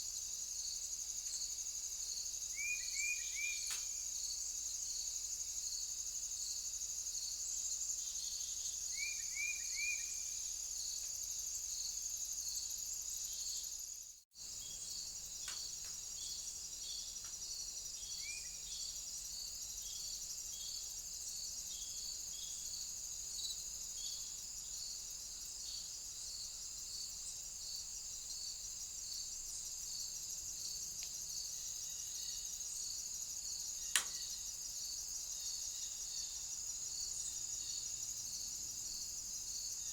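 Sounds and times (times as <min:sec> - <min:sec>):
crickets chirping: 0:00.0 - 0:39.9
sharp click: 0:33.9 - 0:34.2.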